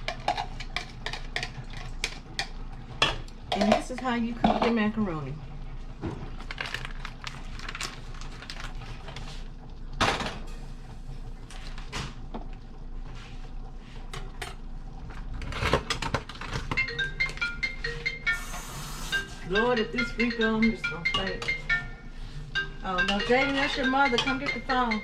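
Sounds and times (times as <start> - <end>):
marimba phone ringtone: 16.7 - 25.0.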